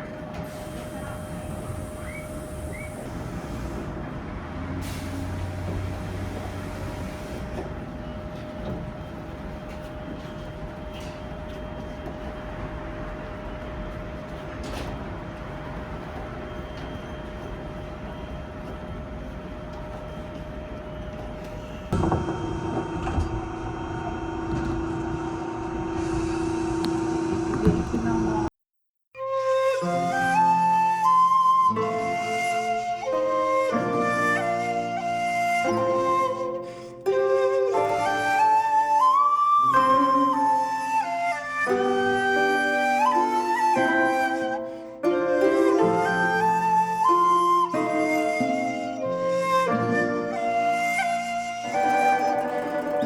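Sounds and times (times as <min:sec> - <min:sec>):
tram wheels and motor rumbling: 0:00.0 - 0:28.5, 0:37.3 - 0:44.5, 0:50.4 - 0:53.0.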